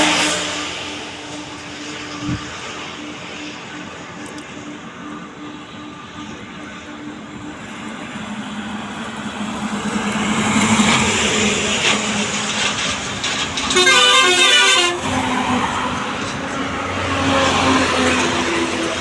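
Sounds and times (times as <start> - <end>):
pulsing horn blare: 0.0 - 7.5, 13.6 - 19.0
truck engine and road noise: 0.0 - 19.0.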